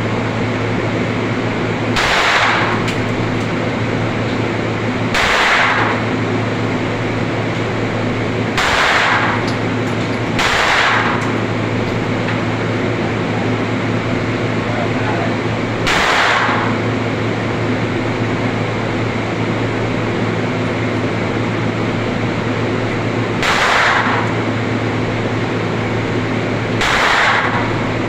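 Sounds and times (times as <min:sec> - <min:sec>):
steady low hum: 0:00.0 - 0:28.0
muffled gunshots: 0:01.9 - 0:02.9, 0:05.1 - 0:06.1, 0:08.5 - 0:09.4, 0:10.4 - 0:11.2, 0:15.8 - 0:16.8, 0:23.4 - 0:24.3, 0:26.8 - 0:27.8.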